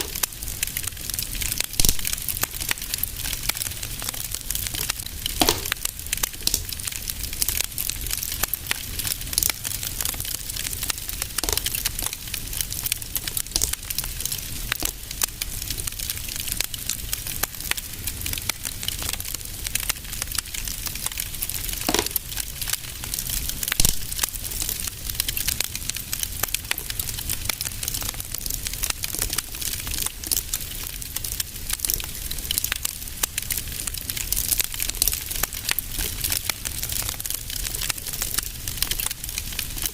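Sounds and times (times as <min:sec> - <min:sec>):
loud fire pops: 0:00.0 - 0:30.4
fire hiss and rumble: 0:00.0 - 0:39.9
wood fire crackling: 0:00.0 - 0:39.9.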